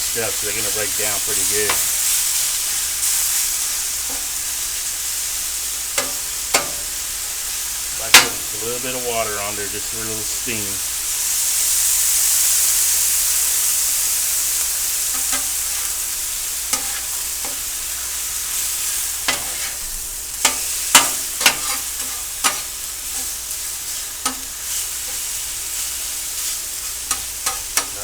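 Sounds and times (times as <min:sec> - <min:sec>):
food sizzling on a griddle: 0:00.0 - 0:28.0
metal utensil scraping griddle: 0:00.2 - 0:04.5, 0:05.9 - 0:07.1, 0:08.0 - 0:09.6, 0:15.1 - 0:28.0.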